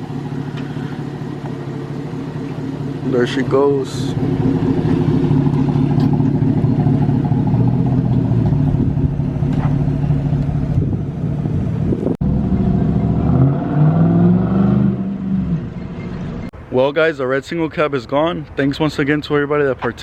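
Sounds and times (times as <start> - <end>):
pickup truck engine running: 0.0 - 13.2.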